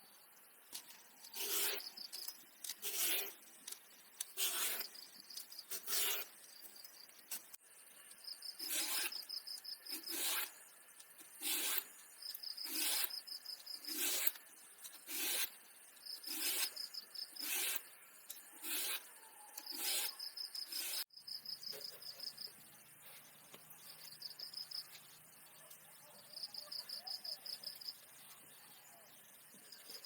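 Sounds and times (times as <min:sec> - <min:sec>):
scraping strokes: 0:00.7 - 0:07.6, 0:08.4 - 0:21.1
insect chirping: 0:19.6 - 0:22.6, 0:23.8 - 0:30.0.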